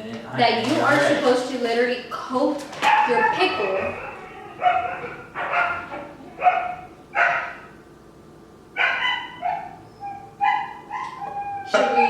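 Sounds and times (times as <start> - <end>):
dogs barking and yelping: 2.8 - 7.8, 8.7 - 12.0.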